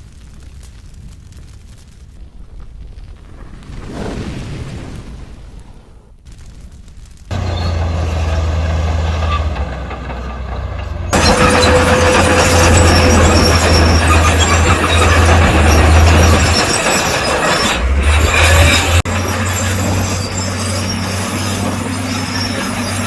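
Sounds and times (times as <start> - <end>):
rumbling grinding of rock and soil: 0.0 - 23.0
diesel machinery engine drone: 7.3 - 23.0.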